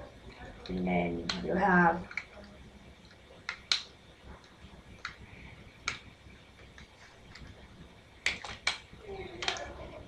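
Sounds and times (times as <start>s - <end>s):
plastic puzzle segments clicking: 0.6s - 5.2s, 8.2s - 9.7s.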